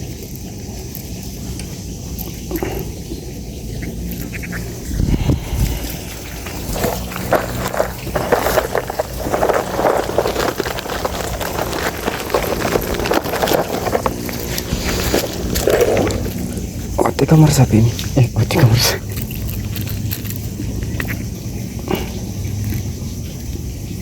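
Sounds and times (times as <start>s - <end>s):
rustling and crackling handling: 0.0s - 23.8s
wind on microphone: 4.6s - 17.0s.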